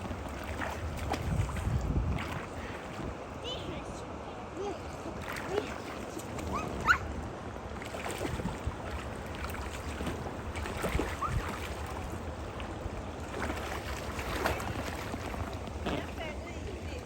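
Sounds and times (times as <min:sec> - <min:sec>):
wind buffeting microphone: 0:00.0 - 0:04.0, 0:08.1 - 0:13.2
stream water rushing: 0:00.0 - 0:17.0.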